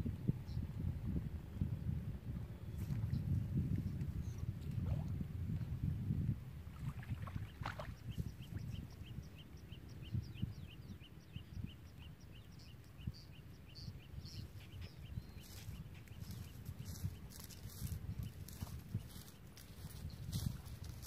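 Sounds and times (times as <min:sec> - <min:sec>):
bird chirping: 0:07.6 - 0:21.0.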